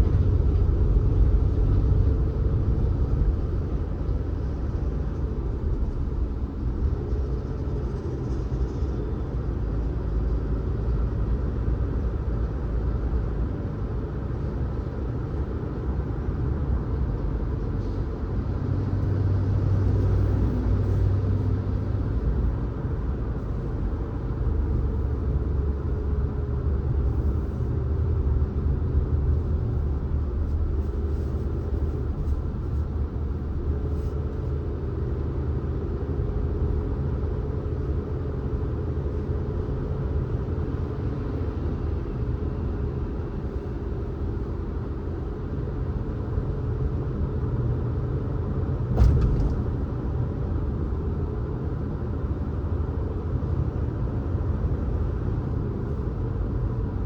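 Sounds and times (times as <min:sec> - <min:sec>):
car engine and tyres rumbling: 0:00.0 - 0:57.0
short thump: 0:48.9 - 0:49.9.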